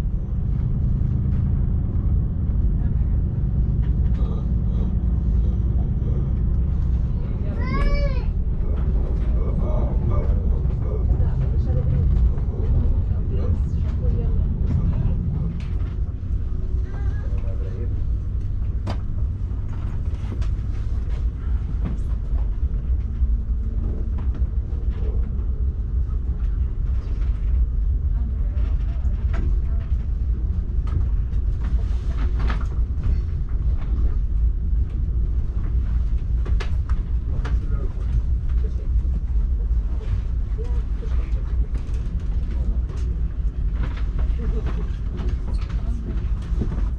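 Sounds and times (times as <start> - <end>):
passenger train rumbling: 0.0 - 46.9.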